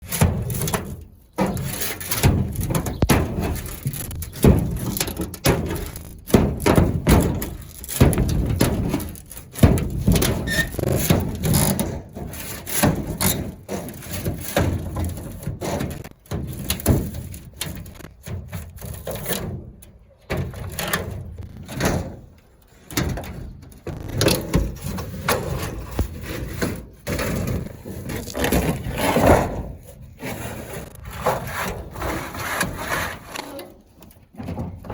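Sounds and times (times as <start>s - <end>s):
knocks and thuds on timber: 0.0s - 20.7s
boards scraping: 0.0s - 34.9s.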